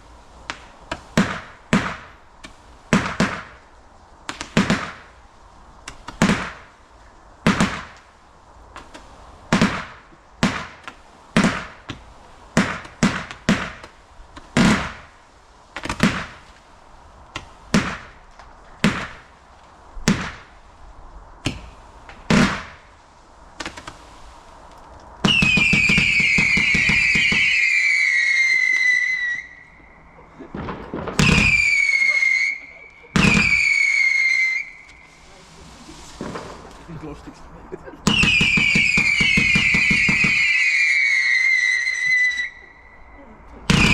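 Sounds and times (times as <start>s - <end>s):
firework bangs: 0.0s - 43.0s, 43.6s - 43.9s
falling firework whistle: 25.2s - 36.9s, 38.0s - 43.9s.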